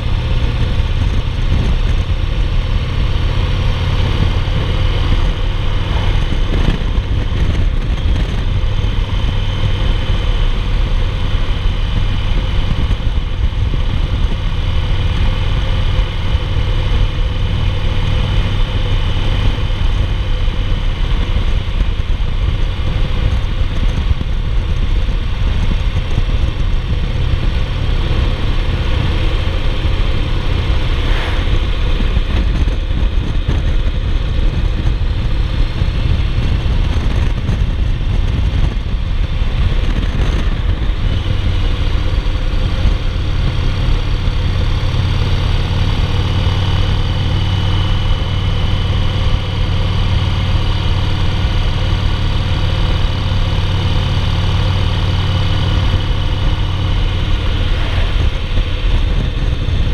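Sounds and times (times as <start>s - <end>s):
motorcycle engine rumbling: 0.0s - 59.9s
wind rushing: 18.8s - 43.3s, 54.9s - 59.9s.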